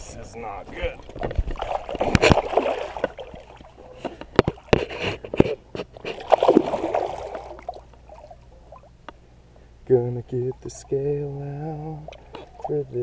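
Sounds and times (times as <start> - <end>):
fish splashing in water: 1.1 - 9.0.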